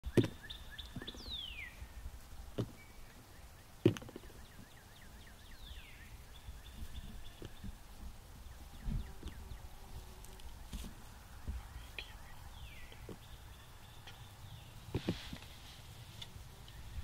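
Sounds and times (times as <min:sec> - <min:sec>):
sharp thumps: 0:00.0 - 0:01.3, 0:03.8 - 0:04.6
whistled bird calls: 0:00.1 - 0:01.8, 0:04.2 - 0:07.8.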